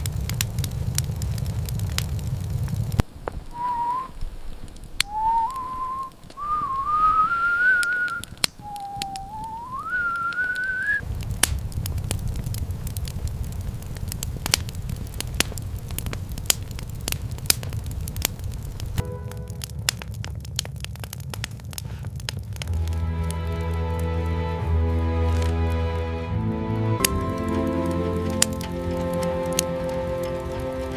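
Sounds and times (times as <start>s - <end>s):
fire crackling with pops: 0.0s - 30.9s
rising whistle-like tone: 3.5s - 4.2s, 5.0s - 11.0s
low rumble: 18.8s - 30.9s.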